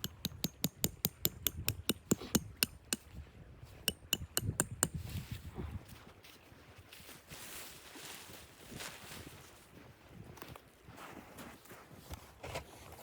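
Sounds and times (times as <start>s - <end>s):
sharp knocks: 3.9s - 5.0s.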